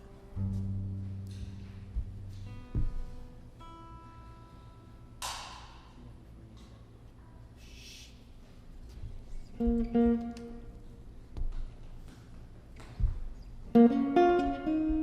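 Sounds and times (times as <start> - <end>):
jazz guitar chords: 0.0 - 5.2, 9.6 - 10.9, 13.0 - 15.0
low bass notes: 0.3 - 3.3.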